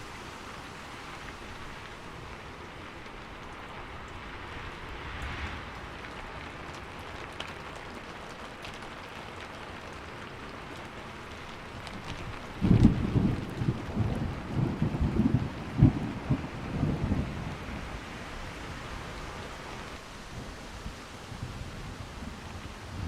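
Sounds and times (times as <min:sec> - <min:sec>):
rain falling on a roof: 0:00.0 - 0:23.0
single raindrops ticking: 0:00.7 - 0:16.5.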